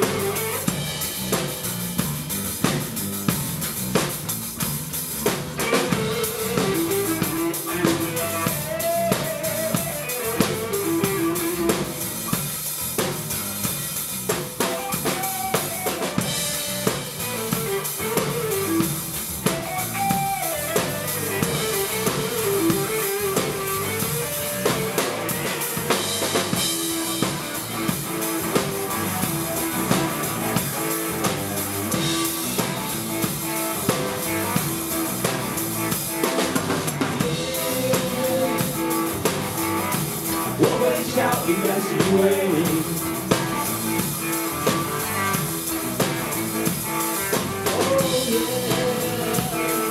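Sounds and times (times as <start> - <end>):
drum kit driving beat: 0.0 - 49.9
melodic lead line: 14.8 - 44.6.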